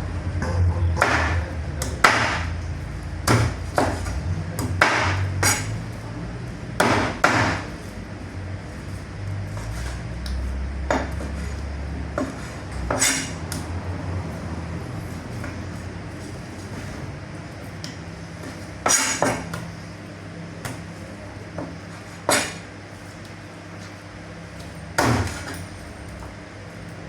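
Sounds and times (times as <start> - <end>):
steady low hum: 0.0 - 27.0
cleaver chopping on block: 1.0 - 2.5, 3.2 - 5.6, 6.8 - 7.7, 25.0 - 25.6.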